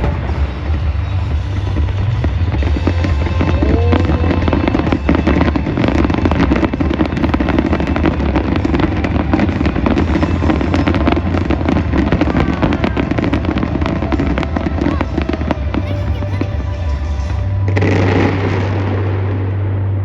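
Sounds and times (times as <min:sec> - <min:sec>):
fireworks crackling and popping: 0:00.0 - 0:19.6
deep continuous rumble: 0:00.0 - 0:20.0
firework whistling: 0:07.2 - 0:16.7.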